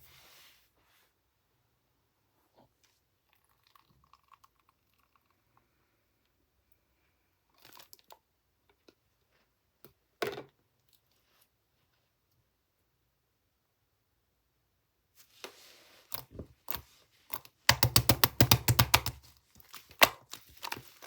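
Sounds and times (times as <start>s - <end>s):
soft handling crackles and taps: 19.3s - 21.0s.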